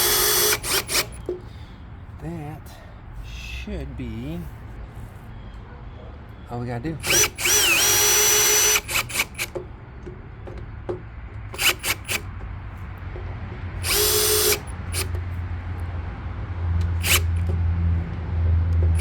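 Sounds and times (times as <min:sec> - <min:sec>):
power drill running: 0:00.0 - 0:01.3, 0:07.0 - 0:09.6, 0:11.5 - 0:12.3, 0:13.8 - 0:15.2, 0:16.8 - 0:17.5.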